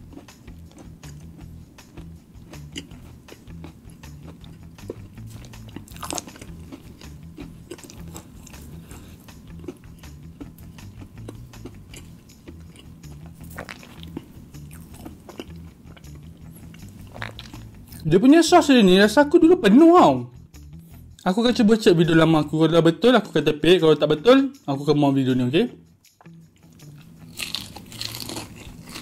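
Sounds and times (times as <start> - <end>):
chewing crispy fried chicken: 0.0 - 18.1, 26.2 - 29.0.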